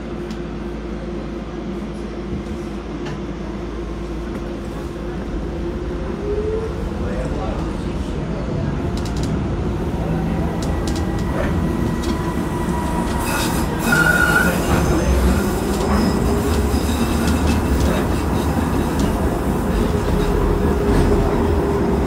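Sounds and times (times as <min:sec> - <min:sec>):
train low rumble: 0:00.0 - 0:22.0
short high squeal: 0:13.2 - 0:15.1.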